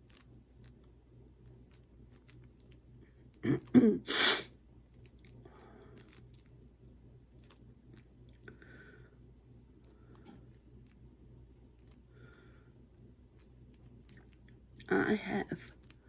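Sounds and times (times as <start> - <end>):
person clearing throat: 3.4 - 4.3.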